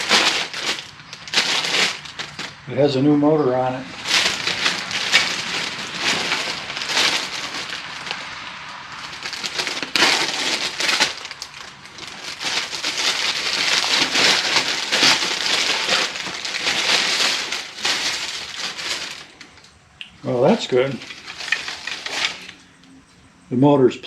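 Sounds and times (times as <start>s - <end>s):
crackling rustling handling noise: 0.0s - 23.3s.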